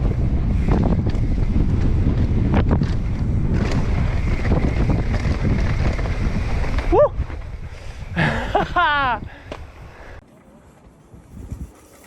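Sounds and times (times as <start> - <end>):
bike knocking and rattling: 0.0 - 8.3
wind buffeting microphone: 0.0 - 10.2, 11.0 - 12.0.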